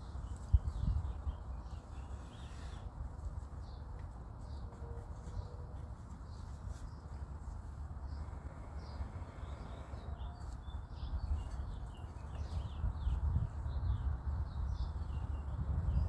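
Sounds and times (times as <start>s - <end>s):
small birds chirping: 0.0s - 16.0s
steady low rumble: 7.2s - 16.0s.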